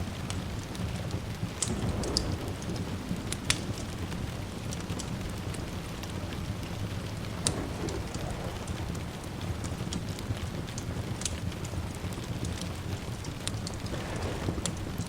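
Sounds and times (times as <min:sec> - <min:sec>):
steady rain: 0:00.0 - 0:15.0
distant thunder rumble: 0:00.1 - 0:15.0.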